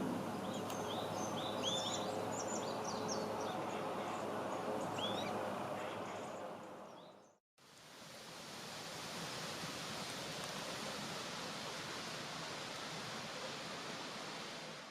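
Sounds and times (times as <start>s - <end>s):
small birds chirping: 0.3s - 7.4s.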